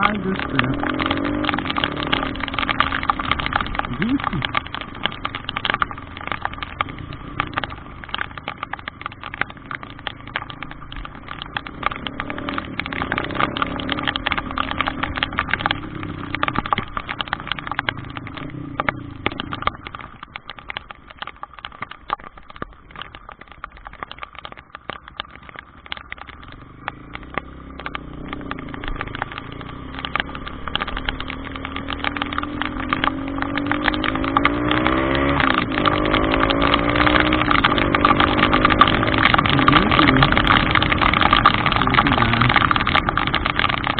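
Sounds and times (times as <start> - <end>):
vehicle engine revving: 0.0 - 4.8, 11.4 - 16.6, 26.8 - 43.9
rapid ticking crackle: 0.0 - 43.9.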